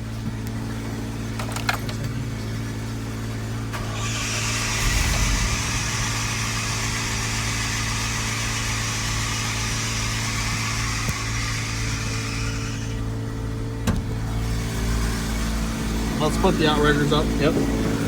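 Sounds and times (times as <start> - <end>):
truck engine idling: 0.0 - 18.0
hiss: 3.8 - 13.0.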